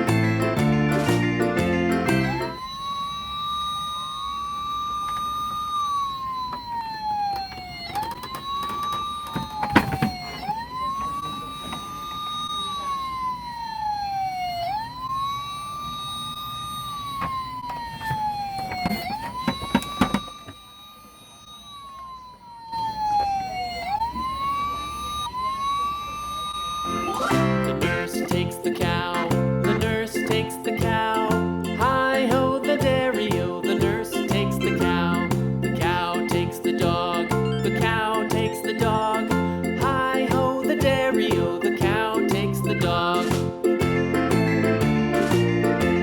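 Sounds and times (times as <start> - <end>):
fire truck siren wailing: 0.0 - 46.0.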